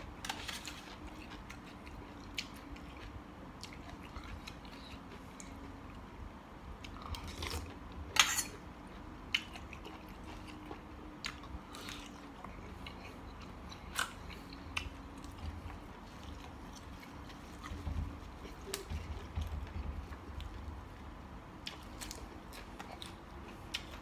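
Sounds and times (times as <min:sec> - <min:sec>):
person chewing and crunching food: 0:00.0 - 0:24.0
loud crack while chewing: 0:06.8 - 0:20.6, 0:21.6 - 0:24.0.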